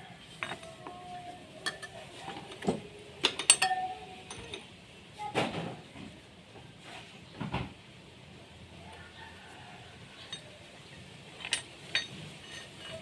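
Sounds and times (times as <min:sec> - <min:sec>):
metallic clinks and taps: 0:03.2 - 0:04.6.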